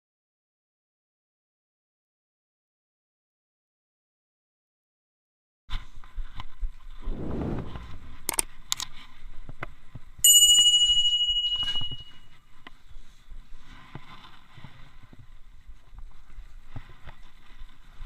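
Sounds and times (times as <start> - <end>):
clicks and handling noise: 7.7 - 10.0
bright bell ding: 10.3 - 12.3.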